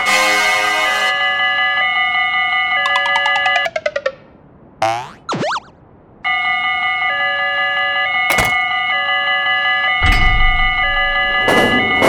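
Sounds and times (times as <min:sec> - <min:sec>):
cartoon boing: 0:04.8 - 0:05.8.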